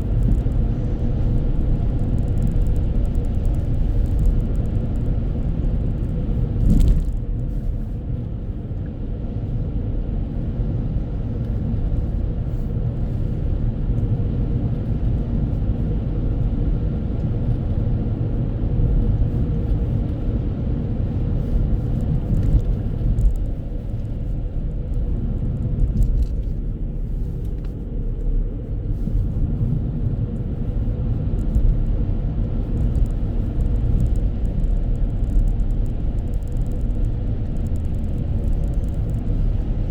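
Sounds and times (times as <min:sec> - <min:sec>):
vehicle rumbling on the move: 0:00.0 - 0:39.9.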